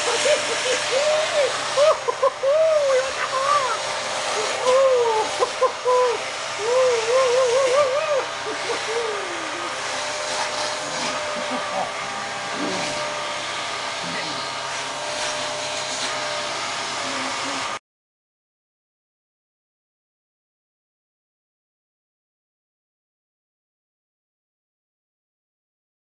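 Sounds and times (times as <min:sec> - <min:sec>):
vacuum cleaner whining: 0:00.0 - 0:17.8
wavering voice-like tone: 0:00.8 - 0:09.8.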